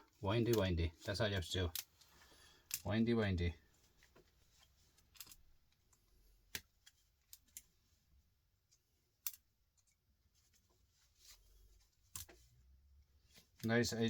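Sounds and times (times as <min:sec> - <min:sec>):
pliers clicking on metal wire: 0:09.2 - 0:09.4.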